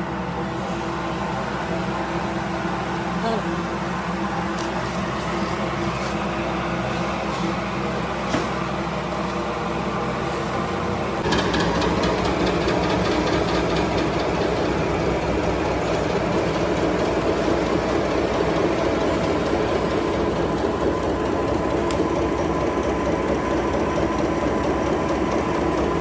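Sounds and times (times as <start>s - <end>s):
factory machinery humming: 0.0s - 26.0s
rapid machine clicking: 11.2s - 26.0s.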